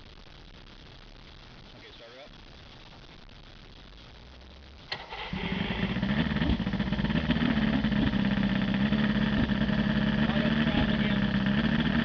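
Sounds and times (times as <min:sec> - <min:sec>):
outboard motor starter click: 0:04.9 - 0:05.8
outboard motor running: 0:05.1 - 0:12.0.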